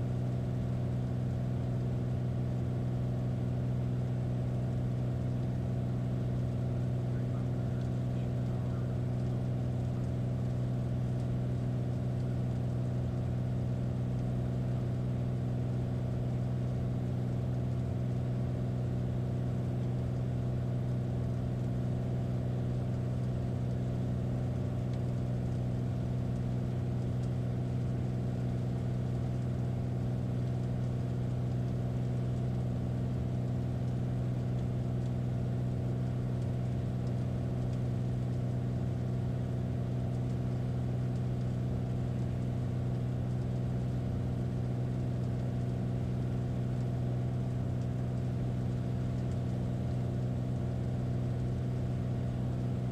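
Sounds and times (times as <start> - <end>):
small airplane engine drone: 0.0 - 18.4.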